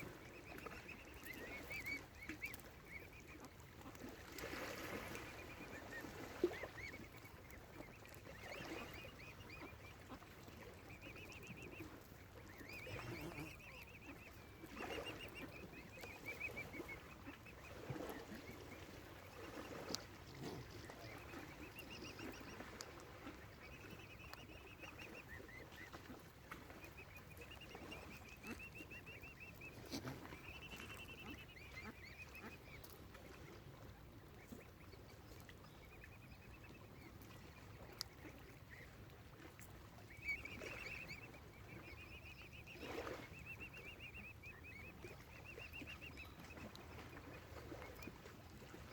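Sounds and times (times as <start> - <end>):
cygnets peeping: 5.0 - 17.6, 26.9 - 32.9.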